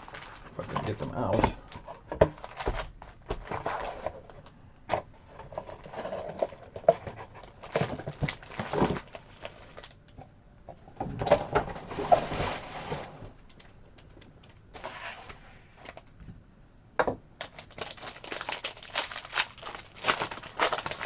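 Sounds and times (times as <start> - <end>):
wrapper crinkling: 0.0 - 4.0, 7.4 - 10.0, 17.4 - 21.0.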